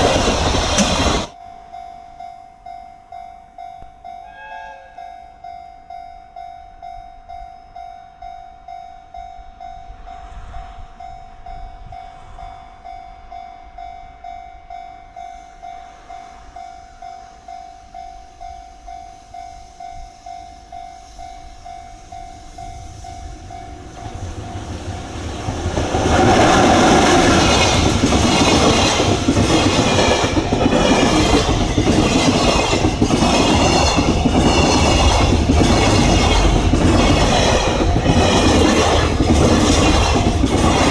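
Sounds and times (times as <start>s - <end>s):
train wheels clacking on rails: 0.0s - 1.4s, 15.2s - 40.9s
freight train passing: 0.0s - 40.9s
level crossing warning bell: 1.3s - 10.4s, 11.0s - 28.0s.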